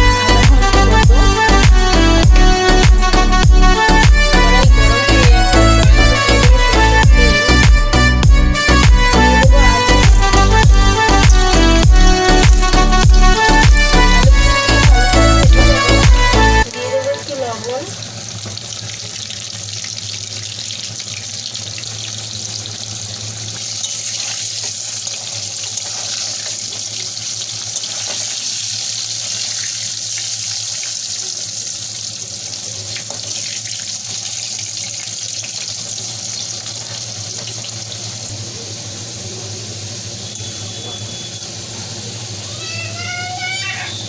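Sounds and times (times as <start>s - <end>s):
potatoes sizzling in hot oil: 9.9s - 14.0s, 16.6s - 44.0s.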